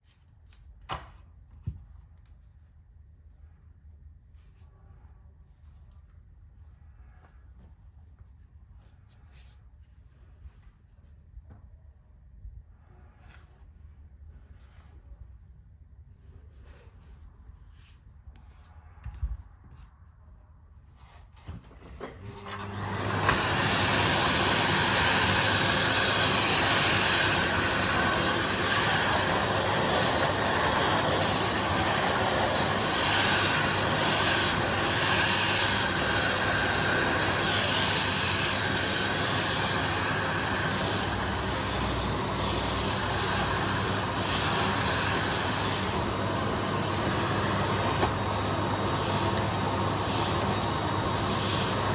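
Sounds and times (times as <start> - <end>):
vacuum cleaner running: 21.7 - 51.9.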